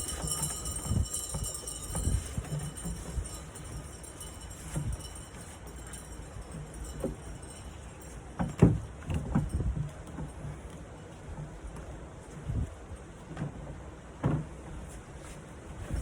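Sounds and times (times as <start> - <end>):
knocks and bumps on wood: 13.3 - 14.6.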